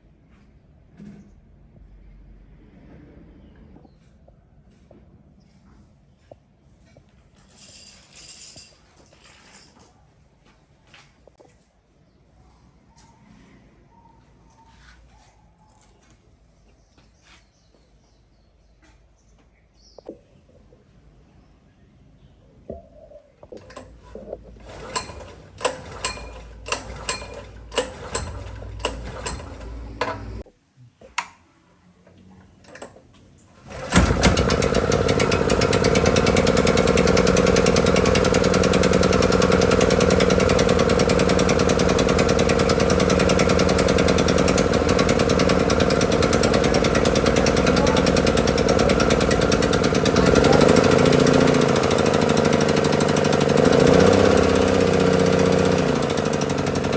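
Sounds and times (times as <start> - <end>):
generator engine running: 23.6 - 30.4, 33.7 - 56.9.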